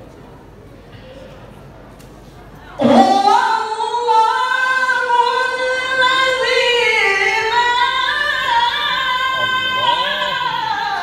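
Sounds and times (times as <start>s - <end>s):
man reciting melodically: 8.8s - 11.0s.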